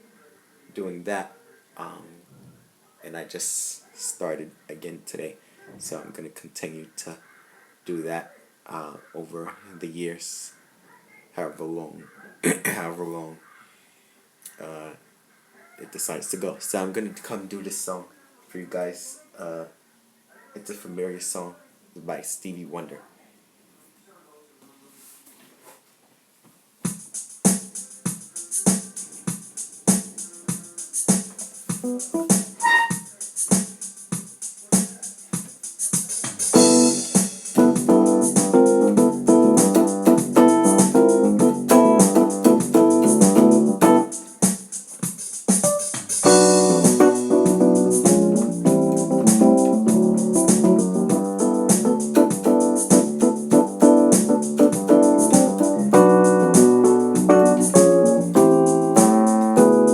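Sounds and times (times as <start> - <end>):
percussion beat: 26.9 - 59.9
keyboard chords and melody: 31.8 - 33.0, 36.5 - 44.4, 45.6 - 59.9.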